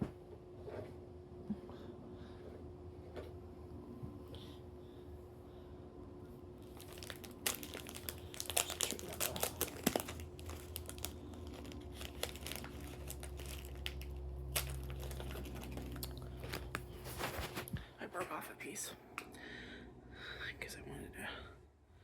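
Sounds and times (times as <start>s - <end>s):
plastic wrapper crinkling: 6.6s - 17.8s.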